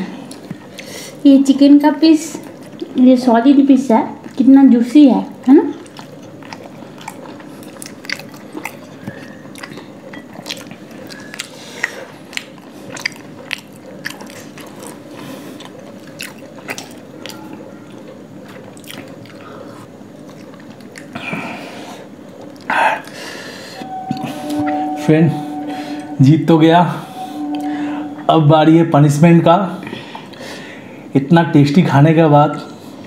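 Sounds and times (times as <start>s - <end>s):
chewing and mouth sounds: 4.1s - 4.6s, 5.2s - 23.2s.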